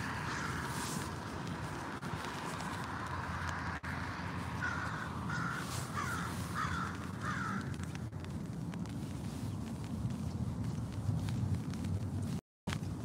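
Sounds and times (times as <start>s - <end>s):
bird calling: 0.0s - 0.9s, 4.6s - 8.0s
steady low rumble: 0.0s - 13.0s.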